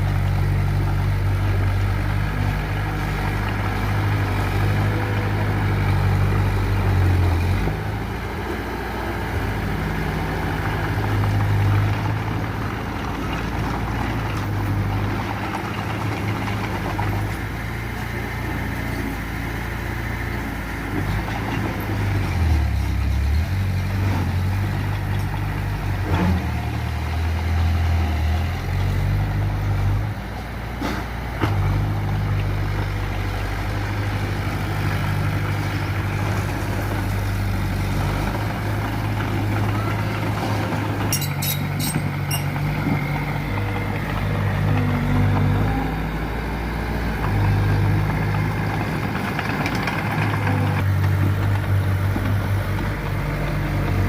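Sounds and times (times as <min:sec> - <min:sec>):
diesel engine working under load: 0:00.0 - 0:54.0.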